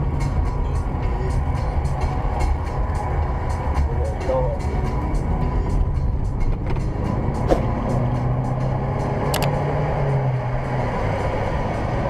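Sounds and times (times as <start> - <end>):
car engine and road rumble: 0.0 - 12.0
sharp click: 9.4 - 9.6.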